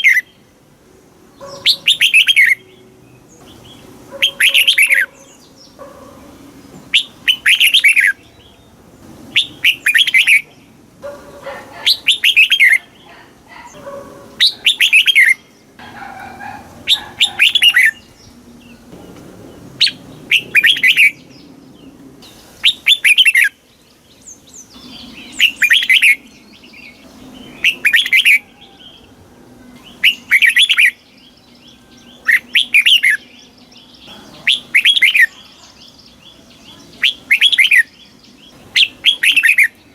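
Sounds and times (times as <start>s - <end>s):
bird warbling: 1.4s - 2.8s, 3.4s - 8.4s, 9.3s - 21.4s, 24.7s - 29.2s, 29.8s - 31.1s, 38.8s - 39.8s.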